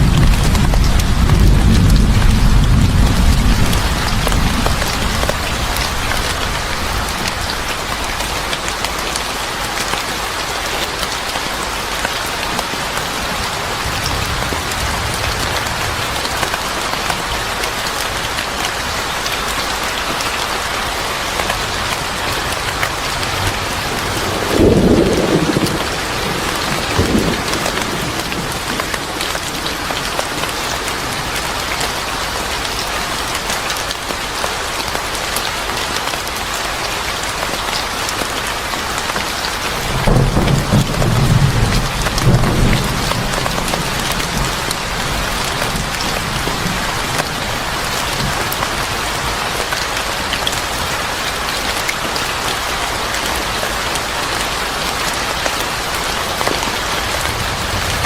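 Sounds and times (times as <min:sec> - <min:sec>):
thunder rumbling: 0:00.0 - 0:07.8, 0:22.0 - 0:31.6, 0:39.8 - 0:48.5, 0:56.5 - 0:58.0
heavy rain falling: 0:00.0 - 0:58.0.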